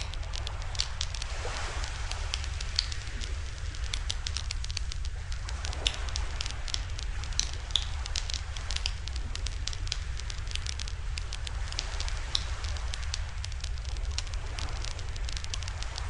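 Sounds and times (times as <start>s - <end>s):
campfire crackling and popping: 0.0s - 16.0s
low fire rumble: 0.0s - 16.0s.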